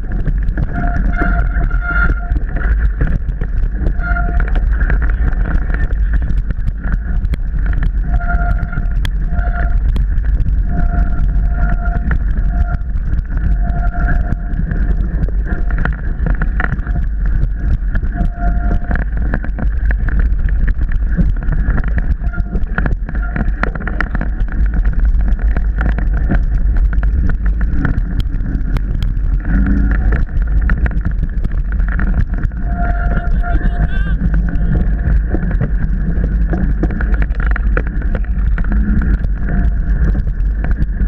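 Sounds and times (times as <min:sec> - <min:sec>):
bike rattling and knocking: 0:00.0 - 0:41.0
wind rumble on microphone: 0:00.0 - 0:41.0
high tone: 0:32.6 - 0:35.0.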